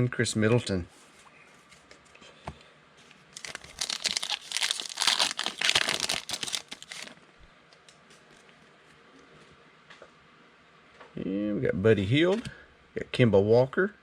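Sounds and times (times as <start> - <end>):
plastic wrapper tearing and crinkling: 3.4 - 7.2.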